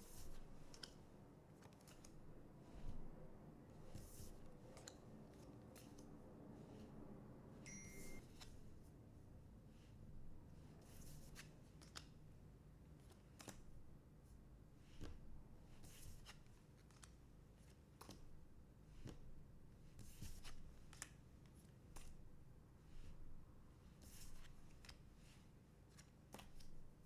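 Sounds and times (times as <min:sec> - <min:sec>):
cards sliding and clicking: 0:00.0 - 0:01.0, 0:01.6 - 0:02.9.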